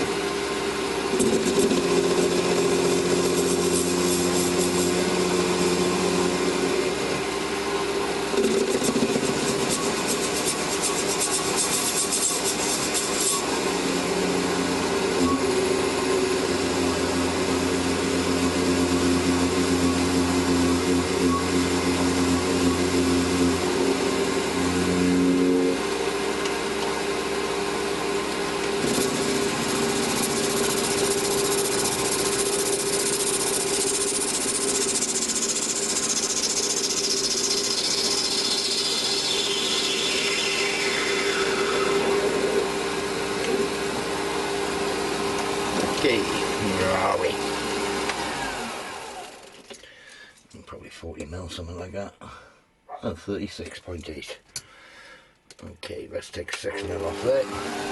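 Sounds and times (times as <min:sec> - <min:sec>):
metal lathe cutting: 0:00.0 - 0:49.5, 0:56.9 - 0:57.9
high whine sliding down: 0:37.3 - 0:44.8.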